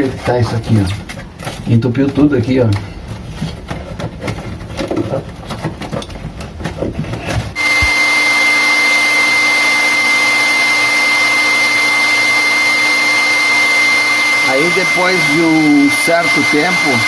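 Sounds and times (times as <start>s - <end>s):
handling knocks and clicks: 0.0s - 7.6s
electric blower whining: 7.5s - 17.0s.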